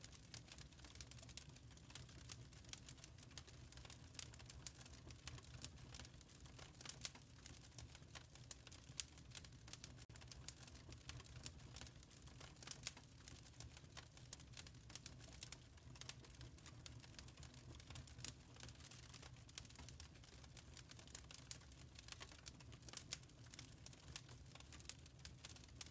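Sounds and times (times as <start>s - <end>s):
wood fire crackling: 0.0s - 25.9s.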